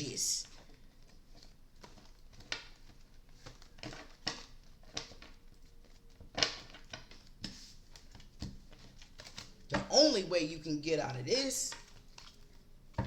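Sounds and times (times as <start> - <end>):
cards rustling and tapping: 0.5 - 10.3.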